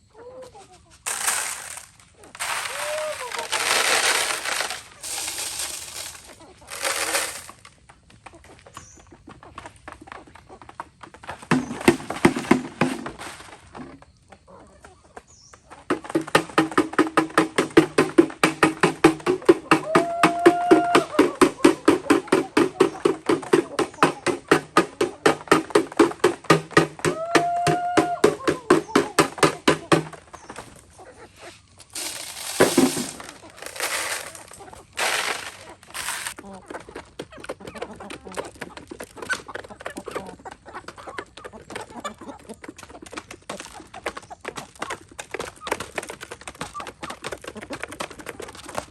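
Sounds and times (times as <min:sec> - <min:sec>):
chickens clucking: 0:00.0 - 0:45.7
rustling noise: 0:00.8 - 0:07.8, 0:11.5 - 0:14.0, 0:28.9 - 0:36.4.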